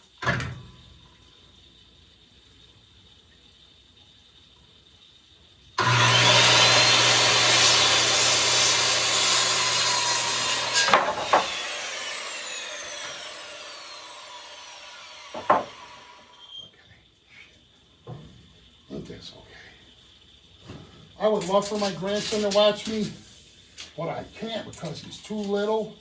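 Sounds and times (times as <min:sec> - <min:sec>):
electric saw cutting wood: 0:05.8 - 0:16.6
saw blade winding down: 0:05.8 - 0:16.6
sharp knocks: 0:10.7 - 0:11.6, 0:15.3 - 0:15.8.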